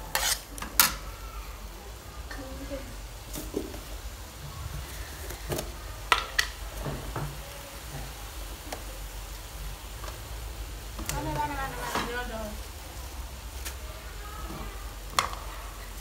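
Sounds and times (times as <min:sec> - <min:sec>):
beef sizzling in a wok: 0:00.0 - 0:16.0.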